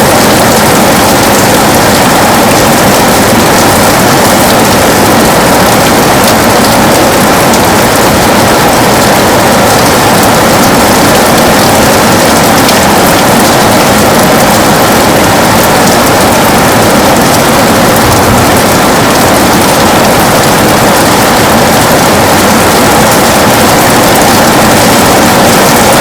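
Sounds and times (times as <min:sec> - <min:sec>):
heavy rain on a window: 0:00.0 - 0:26.0.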